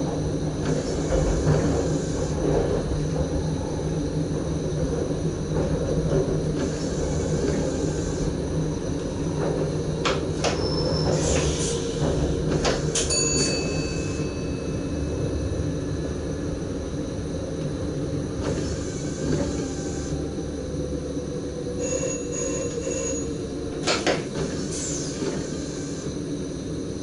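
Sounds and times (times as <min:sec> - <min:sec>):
train running rumble: 0:00.0 - 0:27.0
high-pitched wheel squeal: 0:10.5 - 0:11.9, 0:21.8 - 0:23.4.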